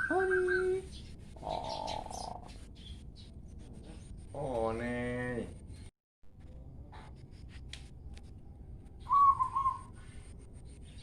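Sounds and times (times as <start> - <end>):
whistled call: 9.0 - 10.0.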